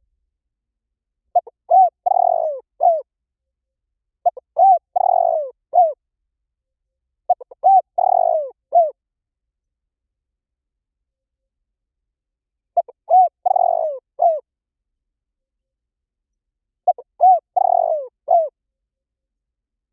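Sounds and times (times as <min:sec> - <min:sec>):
dove cooing: 0:01.3 - 0:03.1, 0:04.2 - 0:06.0, 0:07.3 - 0:09.0, 0:12.8 - 0:14.4, 0:16.8 - 0:18.6.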